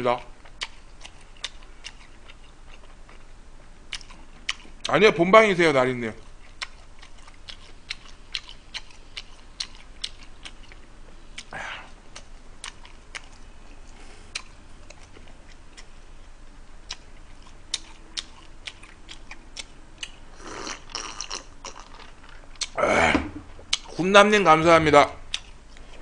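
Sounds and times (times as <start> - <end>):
chewing food: 0.2 - 4.9, 6.1 - 22.8, 25.3 - 26.0.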